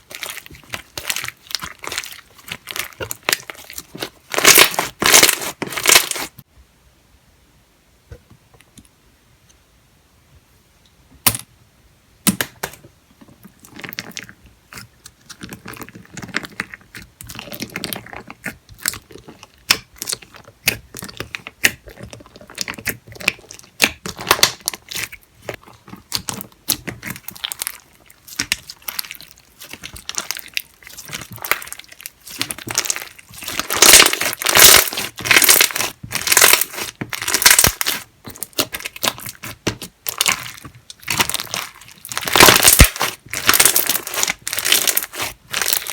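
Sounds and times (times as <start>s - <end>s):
slime crackling and popping: 0.0s - 6.4s, 13.6s - 45.9s.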